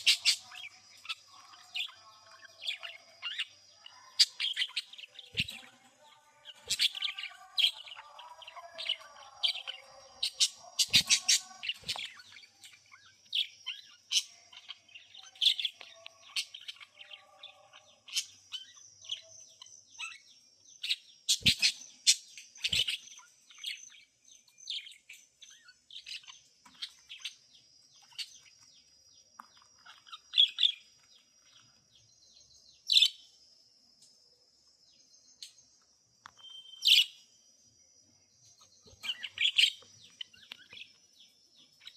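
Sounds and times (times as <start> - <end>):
budgerigars chirping: 0.0 - 5.8, 6.4 - 20.2, 20.8 - 23.9, 38.8 - 41.0.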